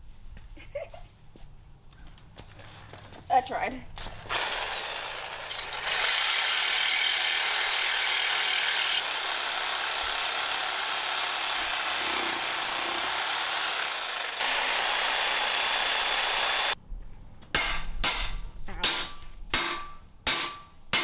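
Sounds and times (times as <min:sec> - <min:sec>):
electric saw cutting steel: 0:04.0 - 0:16.8.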